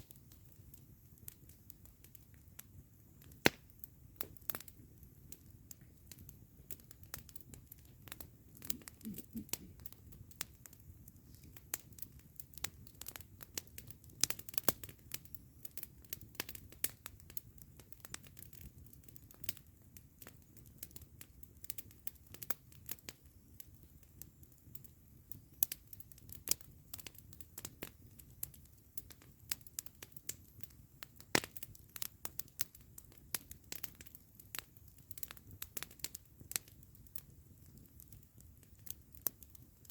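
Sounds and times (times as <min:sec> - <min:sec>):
burning wood popping: 0:00.0 - 0:19.6, 0:20.2 - 0:39.9
campfire crackling: 0:00.0 - 0:39.9.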